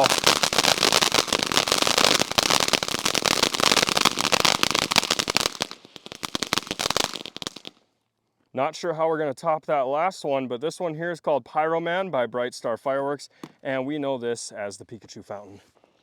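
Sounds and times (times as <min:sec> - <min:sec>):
firework fountain crackling: 0:00.0 - 0:07.8.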